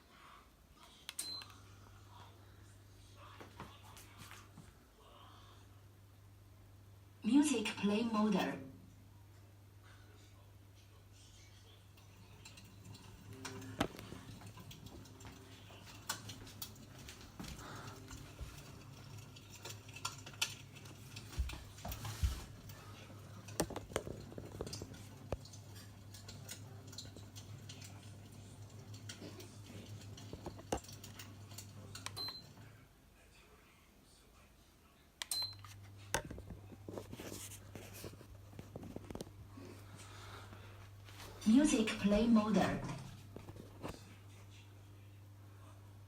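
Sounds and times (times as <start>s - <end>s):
firewood crackling: 12.3s - 31.9s.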